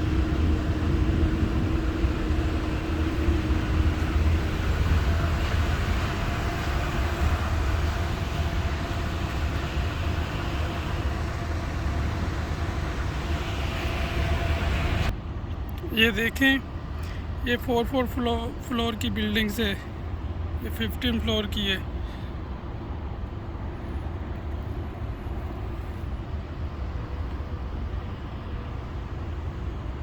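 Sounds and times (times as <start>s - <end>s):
strong wind buffeting microphone: 0.0s - 15.3s.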